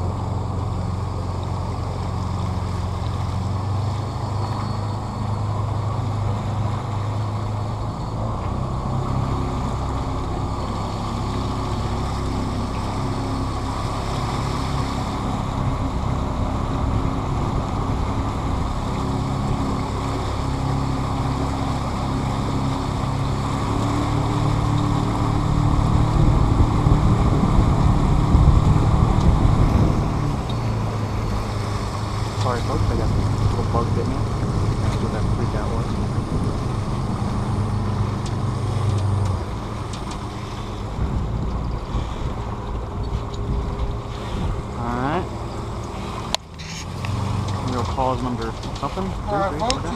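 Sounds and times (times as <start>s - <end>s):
boat motor running: 0.0s - 49.9s
rushing water: 0.0s - 49.9s
wind noise: 11.8s - 49.9s.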